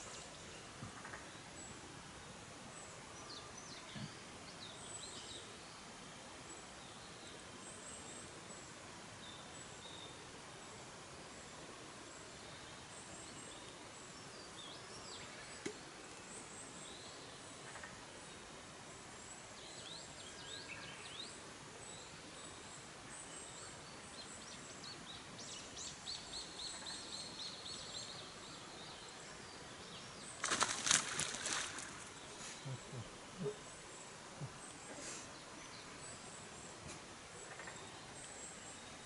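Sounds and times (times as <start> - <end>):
outdoor hiss: 0.0 - 39.0
small birds chirping: 19.2 - 39.0.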